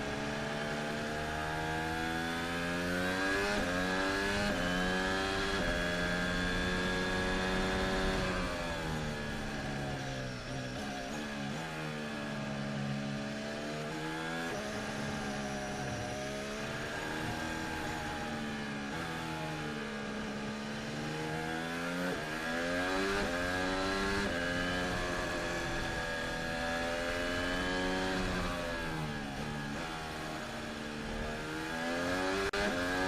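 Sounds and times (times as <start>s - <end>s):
racing car engine: 0.0s - 33.0s.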